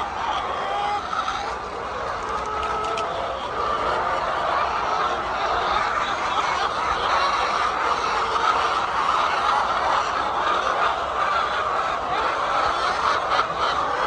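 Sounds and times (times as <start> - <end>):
flock of hens clucking: 0.0 - 14.0.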